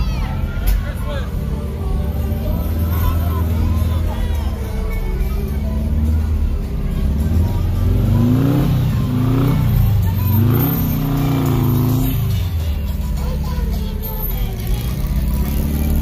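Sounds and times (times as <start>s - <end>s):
passing car engine revving: 5.6s - 13.6s.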